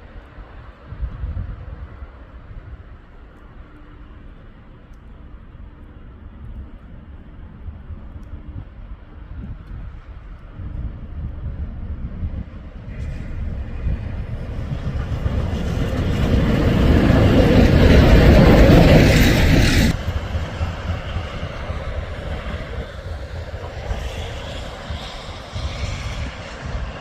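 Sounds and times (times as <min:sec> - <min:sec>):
train passing rumble: 0:00.0 - 0:27.0.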